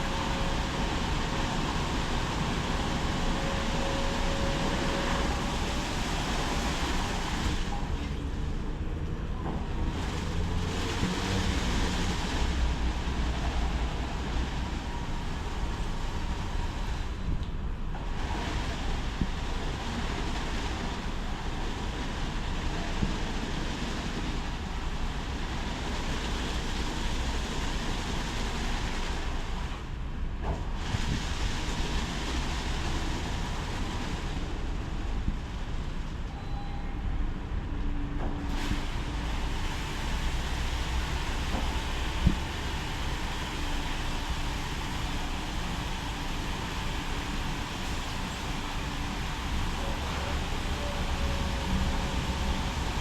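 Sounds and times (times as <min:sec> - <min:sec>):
low mechanical rumble: 0:00.0 - 0:53.0
water spray rushing: 0:09.9 - 0:17.1, 0:38.5 - 0:53.0.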